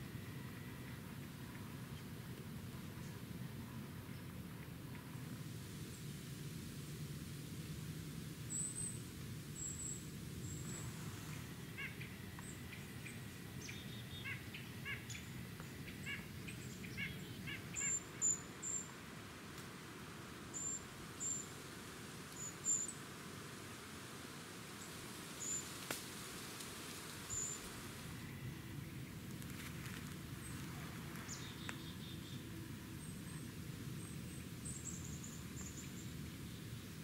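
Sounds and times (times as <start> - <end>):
small birds chirping: 9.6 - 19.0, 22.3 - 23.1, 27.2 - 27.8, 30.4 - 36.8.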